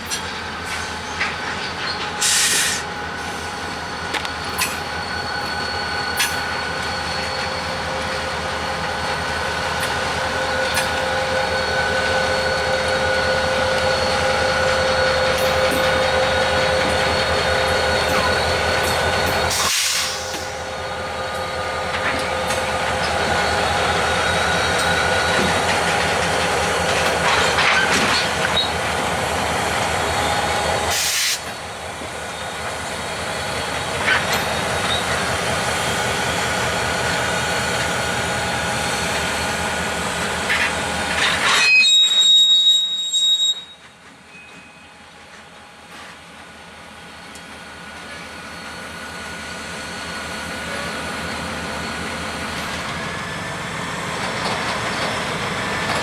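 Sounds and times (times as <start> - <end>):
freight train wheels clattering: 12.0 - 20.7, 21.3 - 41.7, 50.6 - 56.0.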